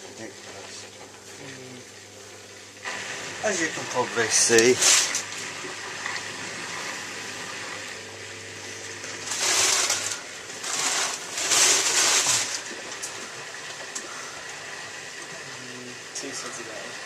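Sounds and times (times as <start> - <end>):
washing machine hum: 0.0 - 17.0.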